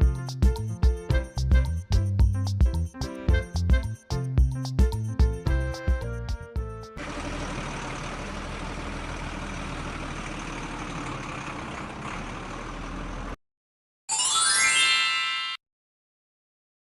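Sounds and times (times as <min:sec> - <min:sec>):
small diesel engine running: 0:07.0 - 0:13.4.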